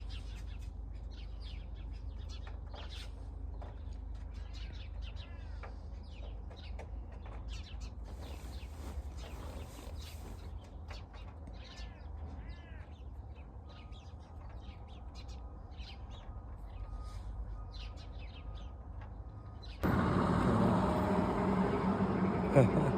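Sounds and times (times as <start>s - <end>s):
steady low rumble: 19.8s - 22.9s.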